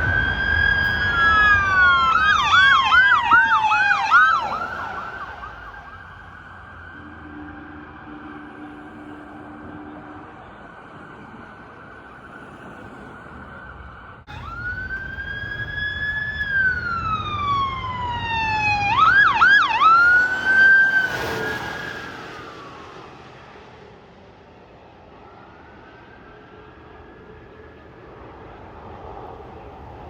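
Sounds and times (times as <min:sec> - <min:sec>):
police siren wailing and yelping: 0:00.0 - 0:12.2, 0:13.2 - 0:23.2
engine and tyre rush: 0:00.0 - 0:30.0.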